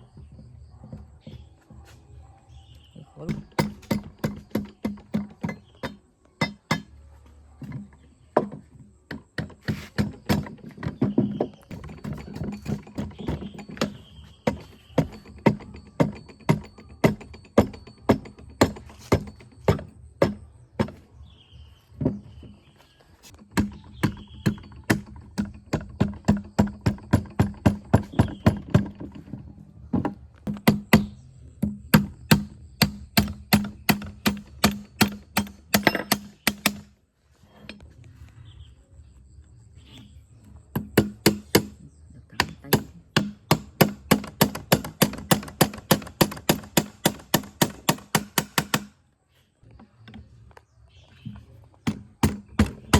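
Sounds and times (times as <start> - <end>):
repeated sharp knocks: 3.3 - 7.0, 8.4 - 21.0, 23.4 - 29.2, 30.4 - 37.0, 40.7 - 41.8, 42.4 - 49.0, 51.8 - 52.9.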